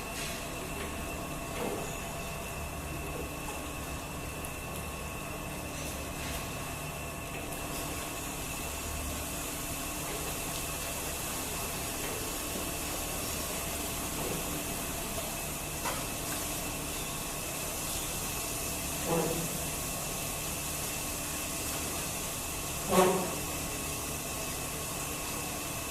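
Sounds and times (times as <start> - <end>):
machine hiss: 8.0 - 25.9.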